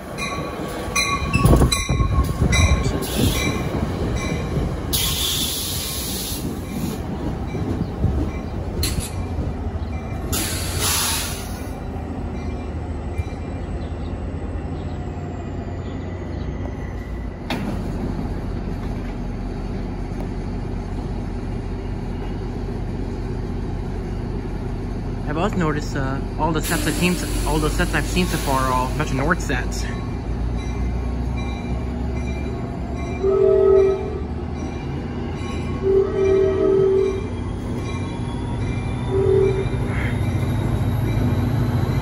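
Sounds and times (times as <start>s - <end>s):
low rumble of standing train: 0.0s - 42.0s
train braking to a stop: 0.2s - 9.3s, 9.9s - 11.8s, 26.4s - 42.0s.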